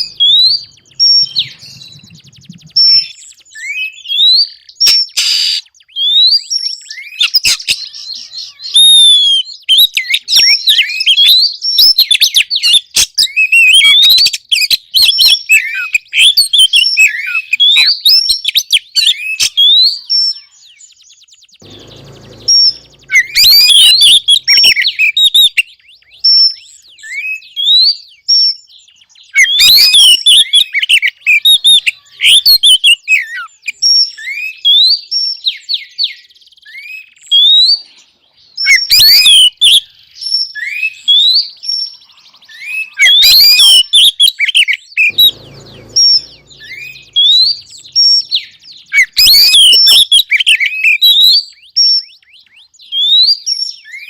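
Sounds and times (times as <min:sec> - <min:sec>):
bird rapid chattering calls: 0:00.0 - 0:03.5, 0:21.6 - 0:25.4, 0:45.1 - 0:50.1
soft bird whistles: 0:00.0 - 0:08.0.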